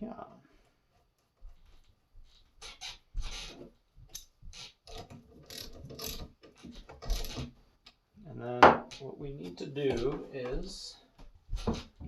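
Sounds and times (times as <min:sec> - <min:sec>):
metal parts clicking and clacking: 0:04.9 - 0:07.5.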